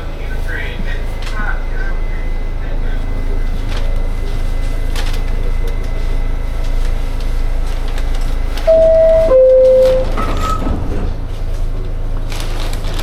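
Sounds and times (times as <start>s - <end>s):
low rumble of train: 0.0s - 13.0s
two-note door-closing chime: 8.7s - 10.7s.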